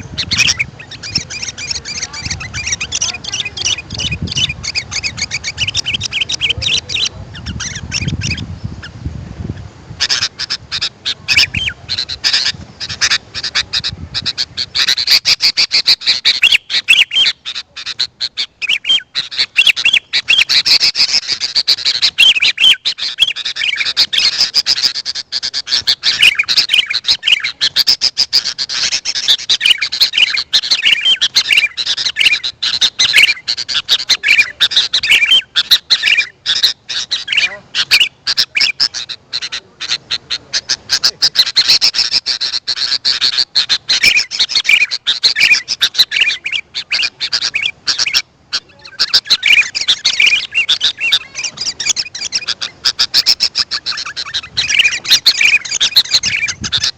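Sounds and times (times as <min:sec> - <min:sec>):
birds chattering and chirping: 0:00.0 - 0:56.9.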